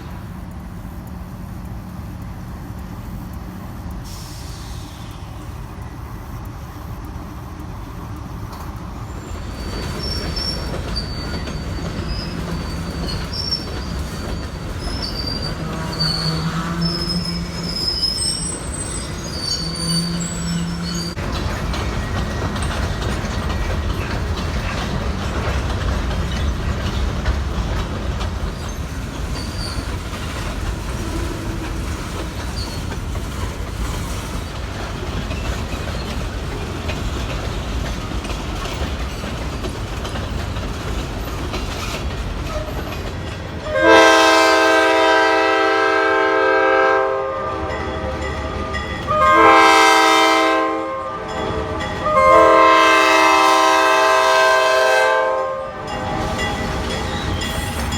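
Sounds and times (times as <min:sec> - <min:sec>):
freight train rumbling on rails: 0:00.0 - 0:57.9
locomotive air horn blasts: 0:15.6 - 0:18.3, 0:43.6 - 0:48.2, 0:49.0 - 0:56.4.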